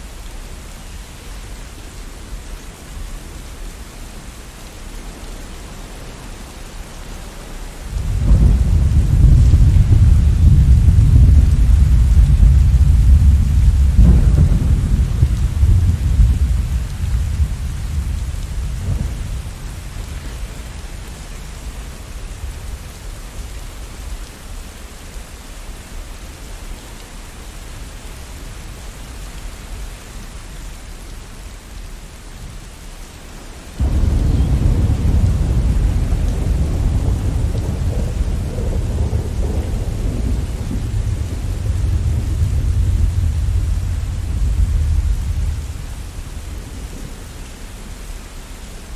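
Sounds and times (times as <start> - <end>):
steady rain: 0.0 - 48.9
thunder rumbling: 7.8 - 23.5, 33.8 - 48.0.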